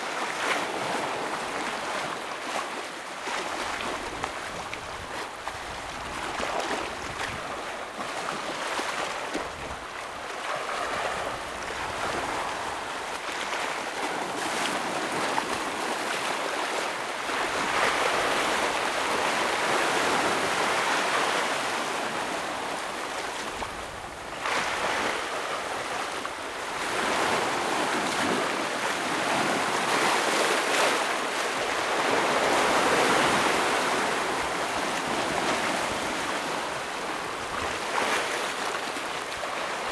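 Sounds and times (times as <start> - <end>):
ocean waves breaking on rocks: 0.1 - 39.9.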